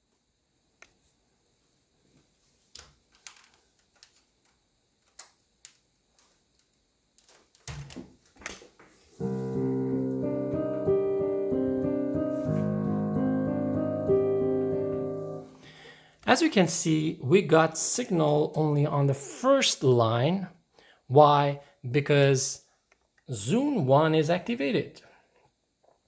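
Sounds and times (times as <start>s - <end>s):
synthesizer piano chords: 9.2s - 15.8s.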